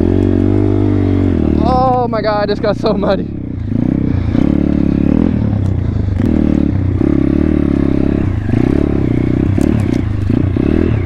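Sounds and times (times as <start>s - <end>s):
pit bike engine revving: 0.0s - 11.0s
bike clattering: 8.4s - 10.4s.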